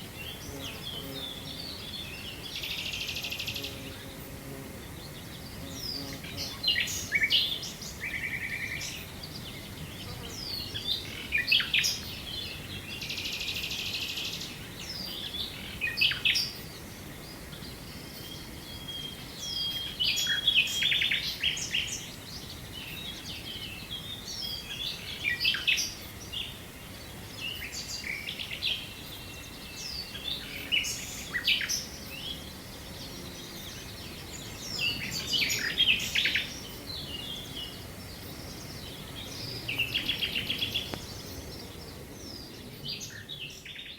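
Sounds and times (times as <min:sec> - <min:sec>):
faint steady hiss: 0:00.0 - 0:43.9
songbirds chirping and trilling: 0:00.0 - 0:43.9.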